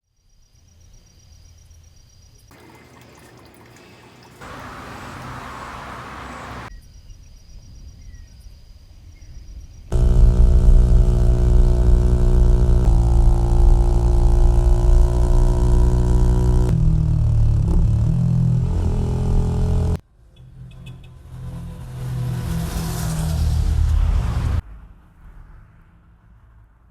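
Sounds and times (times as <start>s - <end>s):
motorcycle engine idling: 9.9s - 16.7s.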